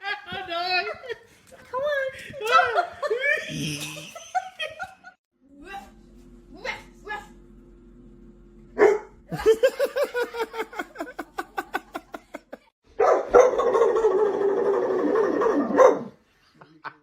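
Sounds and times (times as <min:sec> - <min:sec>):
dog barking: 0:08.8 - 0:09.2, 0:13.0 - 0:14.1, 0:15.3 - 0:16.2.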